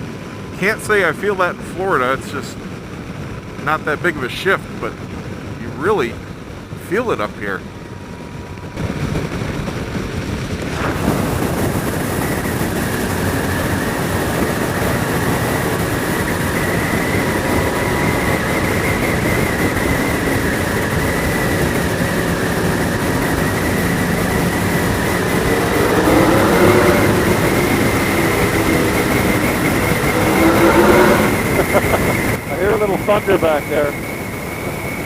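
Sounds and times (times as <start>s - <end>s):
wind rushing on helmet microphone: 0.0s - 35.0s
motorcycle engine running: 7.6s - 32.4s.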